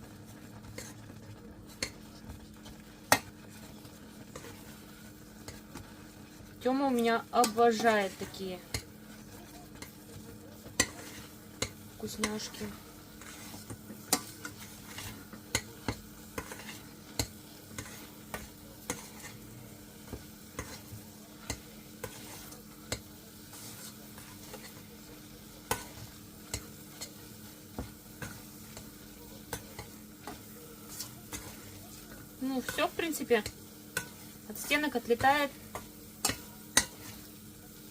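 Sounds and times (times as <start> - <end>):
faint dough sizzle: 0.0 - 37.9
utensil knocking and scraping pan: 10.6 - 19.4, 20.0 - 24.8.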